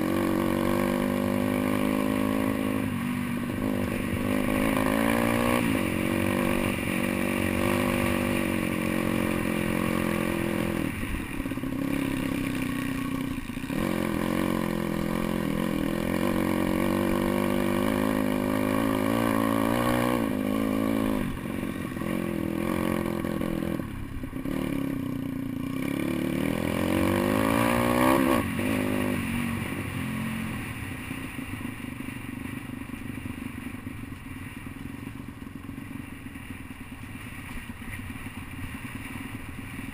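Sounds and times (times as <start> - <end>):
motorbike engine revving: 0.0 - 30.8.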